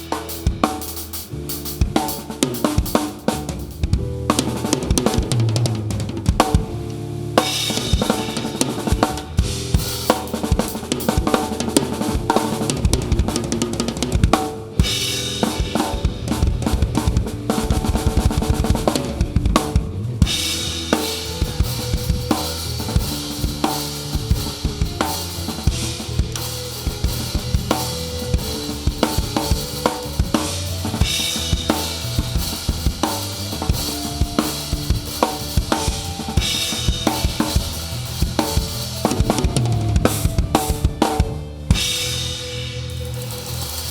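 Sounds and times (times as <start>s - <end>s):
bass drum: 0.0s - 43.9s
bass guitar: 0.0s - 43.9s
electric guitar: 0.0s - 43.9s
cymbals: 20.2s - 43.9s.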